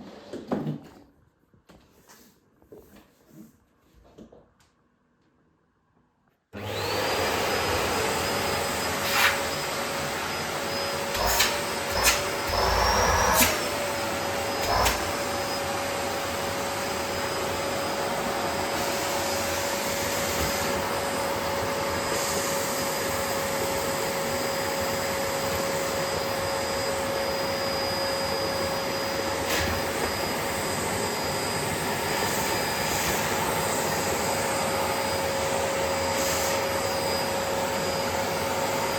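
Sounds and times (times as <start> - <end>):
vacuum cleaner motor whine: 6.6 - 38.9.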